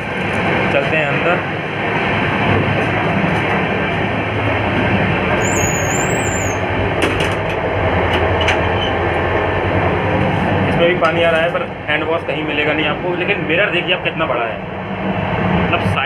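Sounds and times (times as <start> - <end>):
train coach rumble and rattle: 0.0 - 16.0
high wavering squeal: 5.4 - 6.7.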